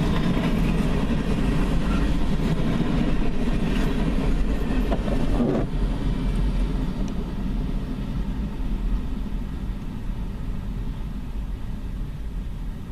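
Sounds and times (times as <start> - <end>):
freight train rumble: 0.0 - 12.9.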